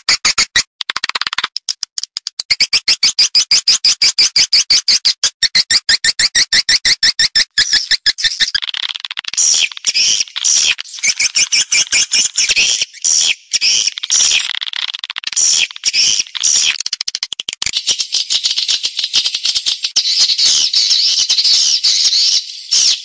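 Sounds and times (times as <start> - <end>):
swiftlets twittering and chirping: 0.0 - 23.0.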